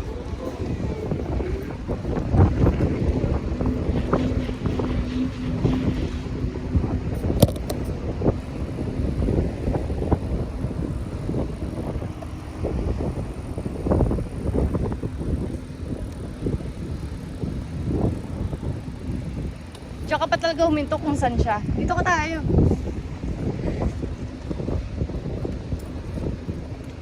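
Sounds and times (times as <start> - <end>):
mountain bike rumbling and rattling: 0.0 - 27.0
wind buffeting microphone: 0.0 - 27.0.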